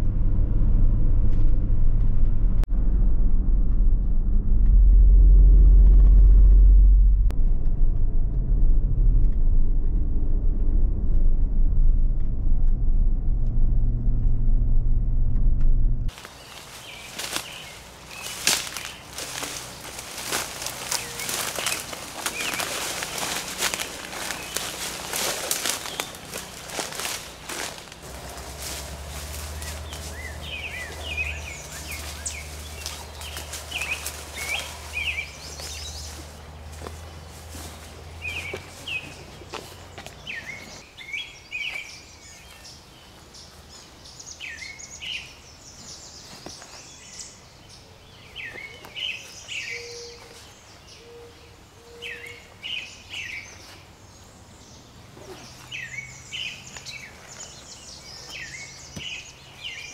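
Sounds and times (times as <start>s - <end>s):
low steady hum: 0.0s - 42.5s
birds chirping: 16.1s - 59.9s.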